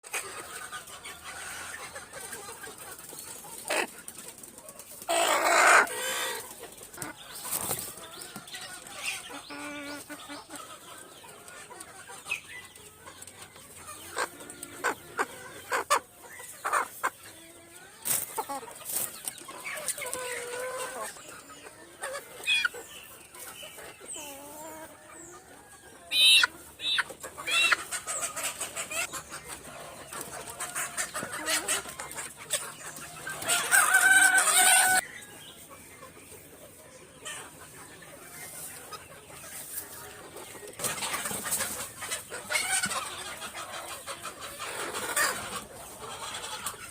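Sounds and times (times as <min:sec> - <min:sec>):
chickens clucking: 0:00.0 - 0:46.9
chicken squawks: 0:05.1 - 0:06.6.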